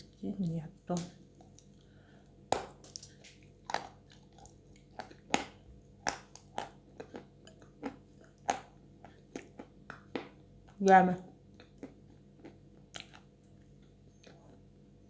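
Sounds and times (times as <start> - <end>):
lip smacks: 11.6 - 13.3
wet mouth clicks: 12.9 - 13.2.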